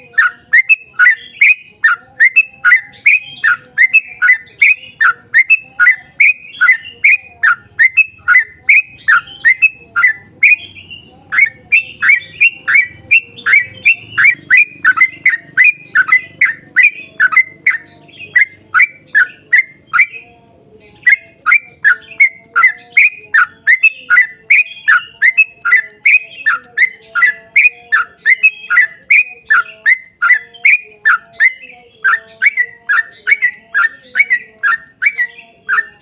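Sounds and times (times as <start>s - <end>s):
bulbul singing repeated notes: 0.0s - 36.0s.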